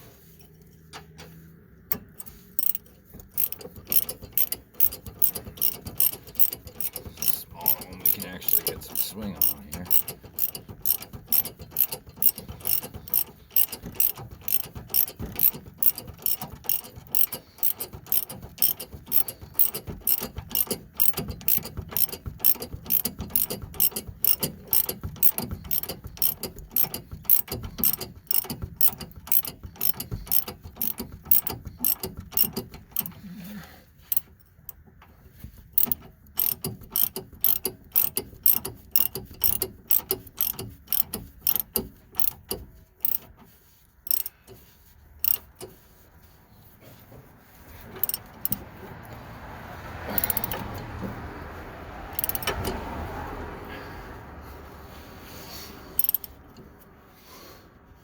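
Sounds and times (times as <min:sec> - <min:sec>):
ratchet wrench clicking: 0:01.9 - 0:33.2, 0:34.0 - 0:34.8, 0:35.5 - 0:45.8, 0:47.9 - 0:49.2, 0:50.1 - 0:51.1, 0:52.0 - 0:52.8, 0:56.0 - 0:56.7.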